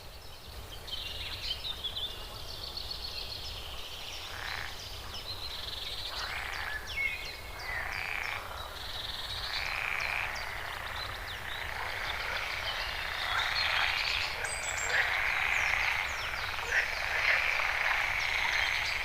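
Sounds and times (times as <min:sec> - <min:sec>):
harsh animal calls: 0:09.5 - 0:19.0.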